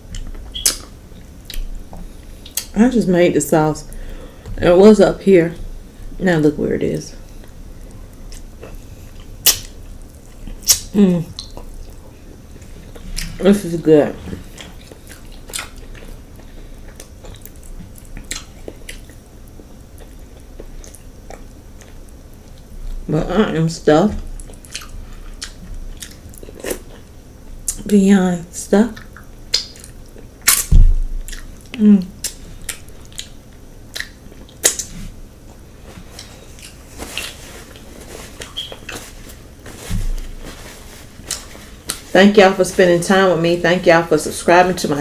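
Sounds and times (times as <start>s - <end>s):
mouth smacks and chewing clicks: 0.1s - 1.7s
wet chewing and lip smacking: 0.1s - 1.7s, 8.3s - 12.0s, 14.5s - 22.7s, 24.4s - 27.8s, 29.0s - 34.9s.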